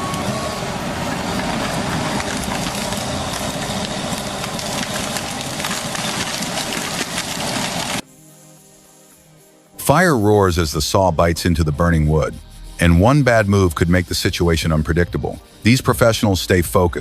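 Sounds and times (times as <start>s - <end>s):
heavy machinery engine running: 0.0s - 8.0s
wood cracking and snapping: 1.3s - 8.0s.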